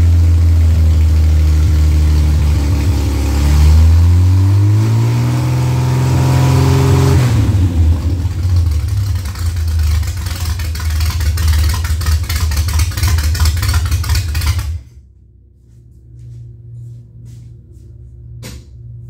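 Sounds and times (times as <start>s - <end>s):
race engine idling: 7.4s - 15.0s.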